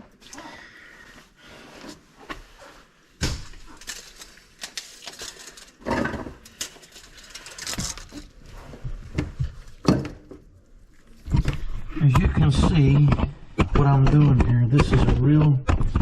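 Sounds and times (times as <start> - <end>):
plumbing work knocks and clatter: 8.9 - 10.5.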